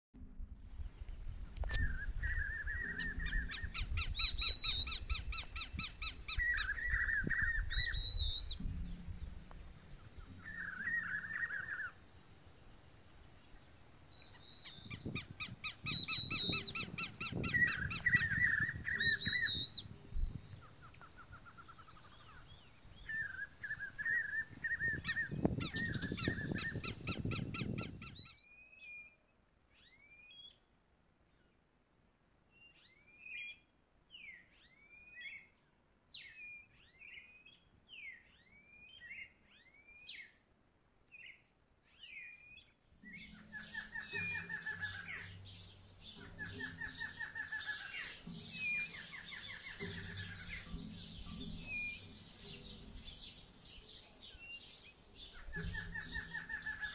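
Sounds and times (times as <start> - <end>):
songbirds singing: 0.2 - 30.7, 32.5 - 40.5, 41.1 - 56.9
low background rumble: 7.6 - 13.5
bird whistling sharp notes: 10.3 - 12.0, 14.4 - 19.8, 23.1 - 29.1.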